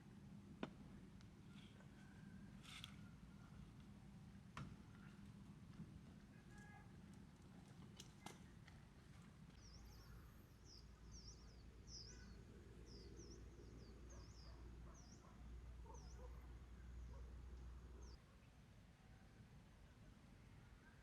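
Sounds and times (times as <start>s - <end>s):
faint bird chirping: 9.6s - 17.3s.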